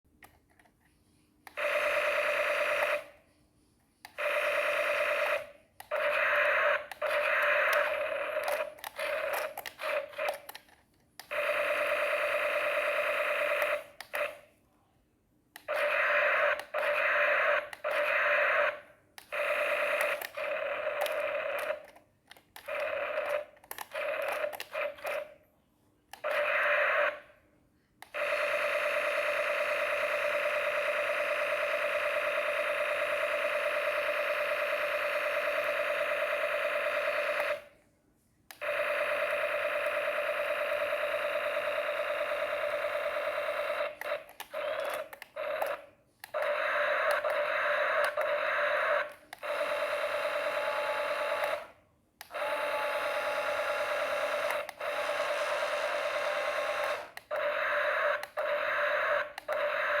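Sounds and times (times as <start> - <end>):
small electric motor whining: 52.3 - 60.0.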